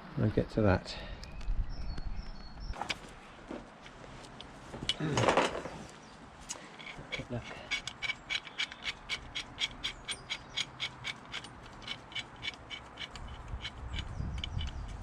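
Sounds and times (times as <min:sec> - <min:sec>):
ratchet spanner clicking: 0:06.8 - 0:15.0.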